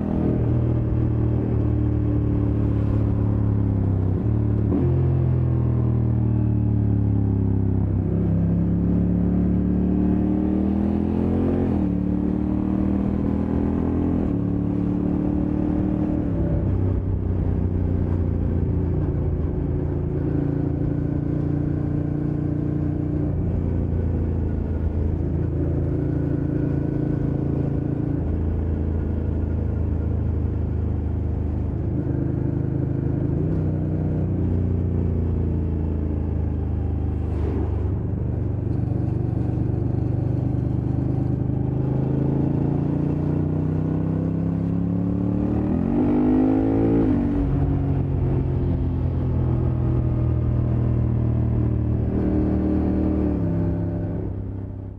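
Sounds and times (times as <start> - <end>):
motorcycle engine running: 14.3 - 45.2.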